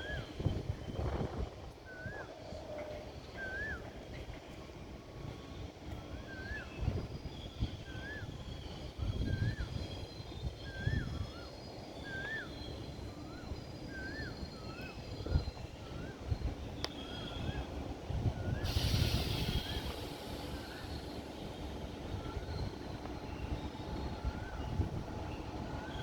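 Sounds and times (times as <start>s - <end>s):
bird whistled call: 3.4s - 4.0s, 7.7s - 16.3s, 18.4s - 24.6s.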